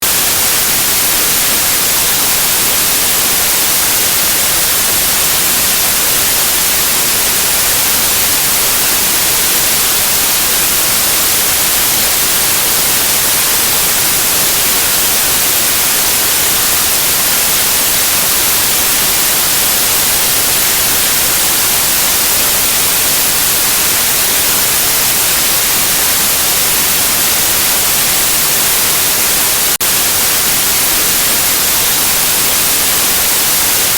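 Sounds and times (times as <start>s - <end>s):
electronic white noise hiss: 0.0s - 33.9s.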